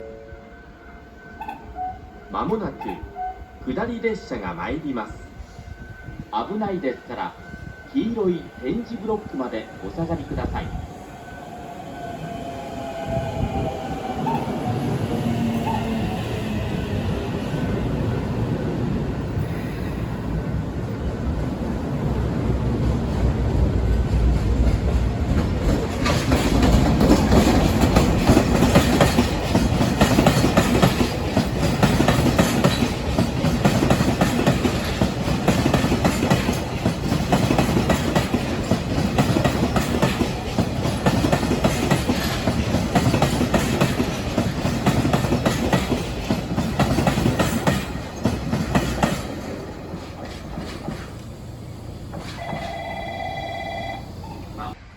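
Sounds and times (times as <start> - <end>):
train wheels clattering over rails: 21.4 - 53.0.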